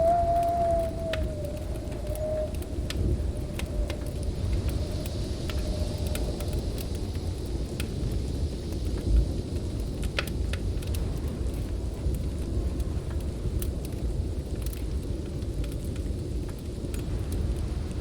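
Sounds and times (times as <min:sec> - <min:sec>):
snowstorm wind rumbling: 0:00.0 - 0:18.0
wood fire crackling: 0:00.0 - 0:18.0.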